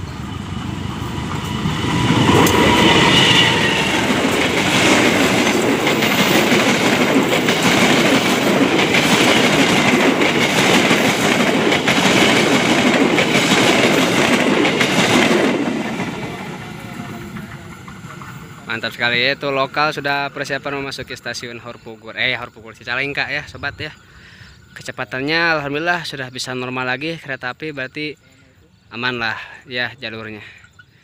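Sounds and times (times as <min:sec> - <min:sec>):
wheels clicking over rail joints: 0:00.0 - 0:19.3
passenger train passing: 0:00.0 - 0:24.0.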